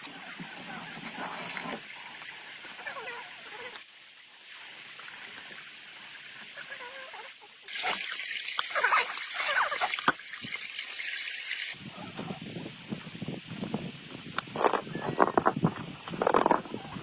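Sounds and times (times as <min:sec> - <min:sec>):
water trickling: 0:00.9 - 0:11.8
water splashing: 0:06.6 - 0:11.8.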